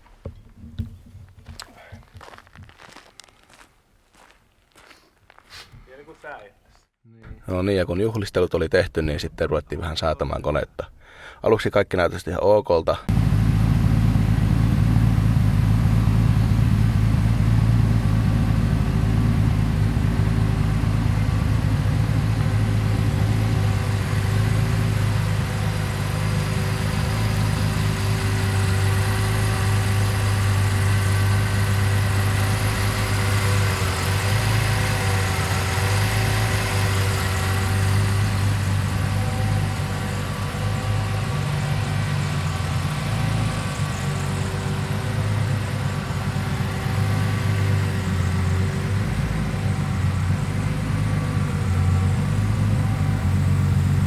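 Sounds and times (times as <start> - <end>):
car engine idling: 13.1 - 54.0.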